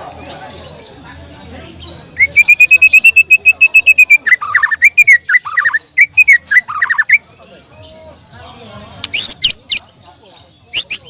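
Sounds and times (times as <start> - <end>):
bird singing whistled notes: 2.1 - 7.3.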